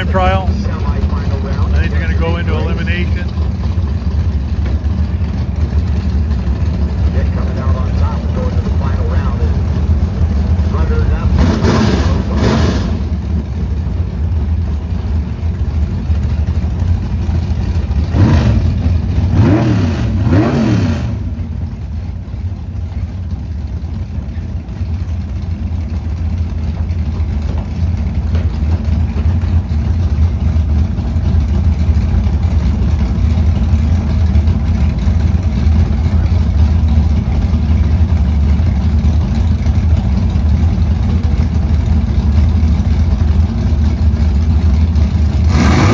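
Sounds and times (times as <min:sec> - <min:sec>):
engine revving: 0:00.0 - 0:03.6, 0:06.7 - 0:13.7, 0:17.9 - 0:21.8, 0:44.6 - 0:45.9
drag racing engines rumbling: 0:00.0 - 0:45.9.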